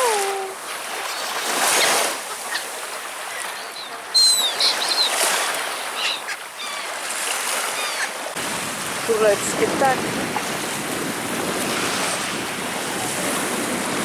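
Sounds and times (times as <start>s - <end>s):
small waves washing at shore: 0.0s - 14.0s
short high bird calls: 3.3s - 7.0s.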